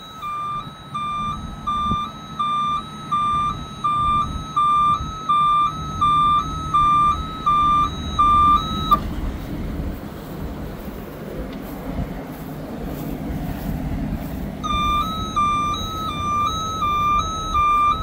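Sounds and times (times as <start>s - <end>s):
two-tone warning beep: 0.0s - 9.0s, 14.6s - 18.0s
diesel engine running: 0.0s - 18.0s.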